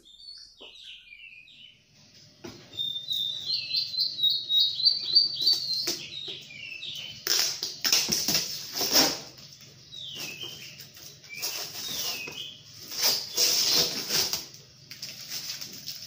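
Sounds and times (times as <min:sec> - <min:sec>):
small birds chirping: 0:00.0 - 0:15.2
plastic packaging crinkling: 0:12.9 - 0:16.0.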